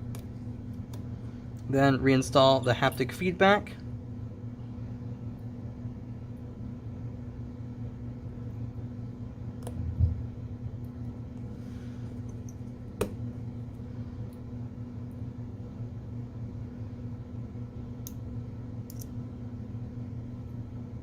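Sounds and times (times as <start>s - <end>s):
low background hum: 0.0s - 21.0s
small part clicks: 18.9s - 19.1s.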